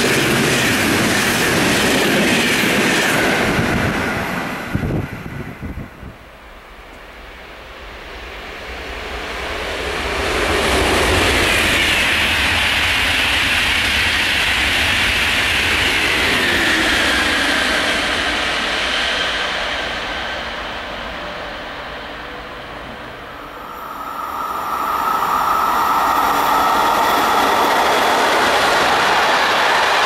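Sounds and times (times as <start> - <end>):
high-speed train rushing past: 0.0 - 30.0
high whine falling in pitch: 23.0 - 28.7.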